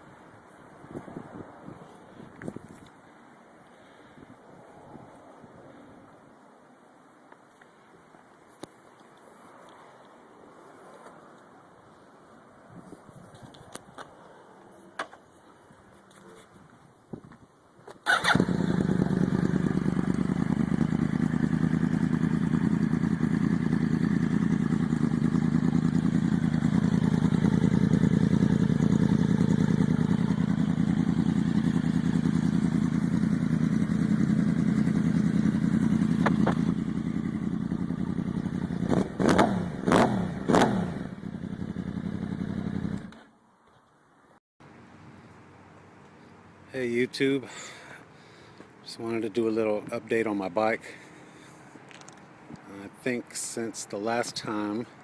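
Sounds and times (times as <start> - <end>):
motorcycle engine idling and revving: 18.1 - 43.4.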